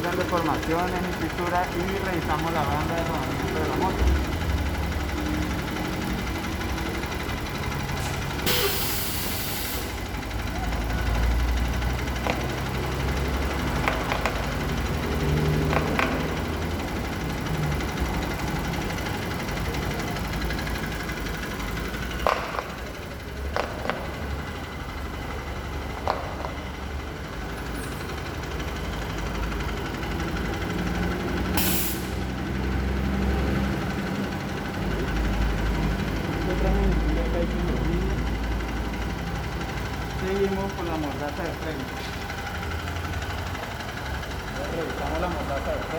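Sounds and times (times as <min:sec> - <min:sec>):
engine idling: 0:00.0 - 0:45.9
hissing air burst: 0:08.0 - 0:10.0, 0:31.6 - 0:32.3.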